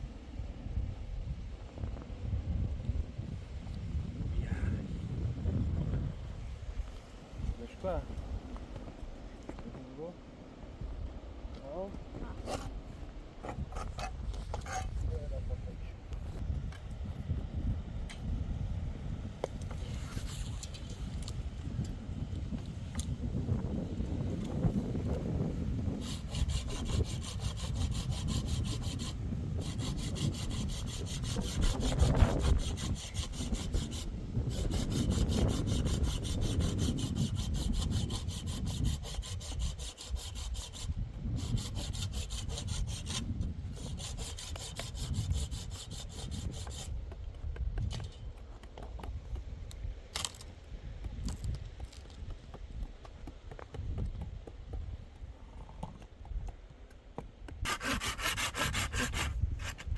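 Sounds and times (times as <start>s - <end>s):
fast even rasping: 57.6s - 59.9s.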